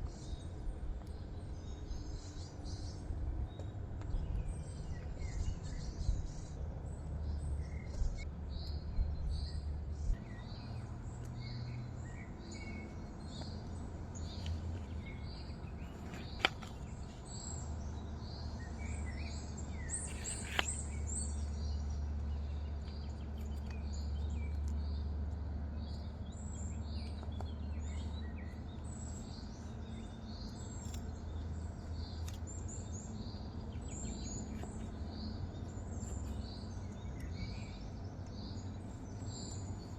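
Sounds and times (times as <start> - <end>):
small birds chirping: 0.0 - 39.9
steady low rumble: 0.0 - 39.9.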